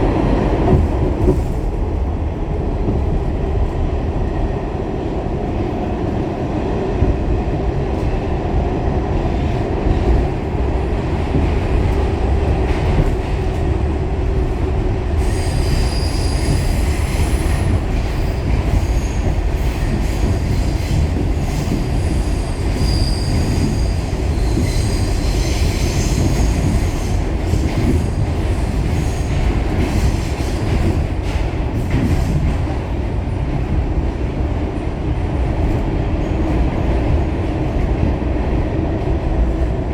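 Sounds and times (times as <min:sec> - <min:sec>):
subway train wheels rumbling on rail: 0:00.0 - 0:39.9
wheel squeal: 0:22.1 - 0:26.3.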